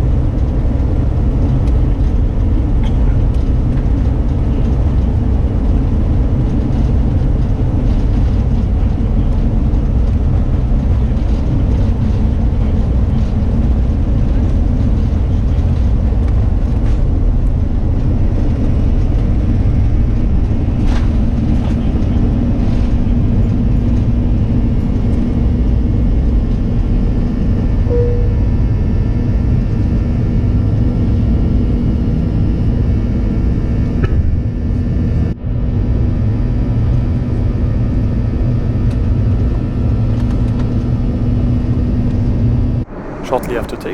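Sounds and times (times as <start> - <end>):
airplane engines rumbling: 0.0 - 35.2, 36.2 - 43.9
steady cabin hum: 42.8 - 43.9.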